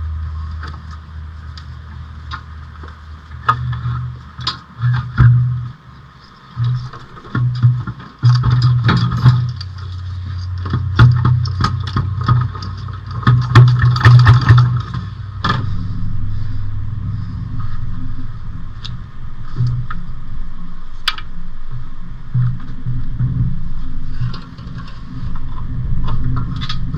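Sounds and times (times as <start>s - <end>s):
steady low hum: 0.0s - 26.9s
metal knocks and clanks: 10.7s - 26.9s.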